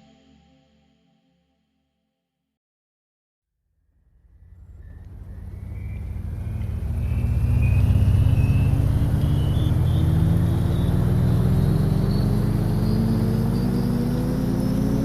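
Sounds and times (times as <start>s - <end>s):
thin rising whine: 4.0s - 15.0s
vehicle engine revving up: 4.2s - 15.0s.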